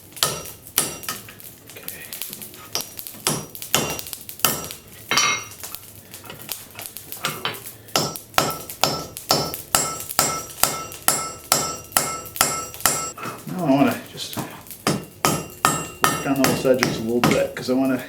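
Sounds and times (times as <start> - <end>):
hammer striking metal on anvil: 0.2 - 1.2, 2.8 - 5.6, 7.4 - 13.2, 14.8 - 17.6.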